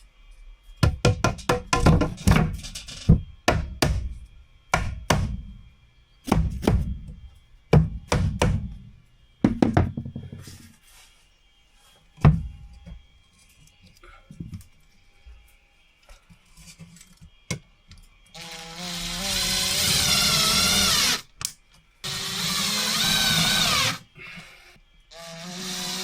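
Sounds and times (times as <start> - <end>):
hammer knocking on wooden panels: 0.8 - 4.0, 4.7 - 5.4, 7.7 - 8.7, 9.4 - 10.5.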